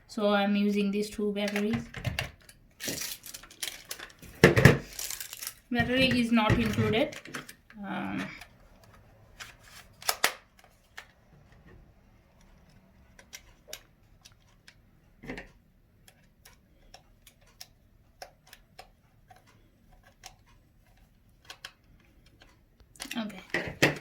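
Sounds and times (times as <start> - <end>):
plastic clicks and taps: 13.1 - 20.5.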